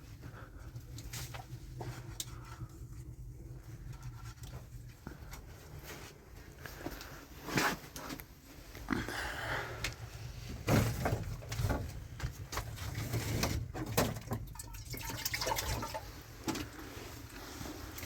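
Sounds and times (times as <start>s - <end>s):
water splashing and pouring: 13.8s - 17.0s.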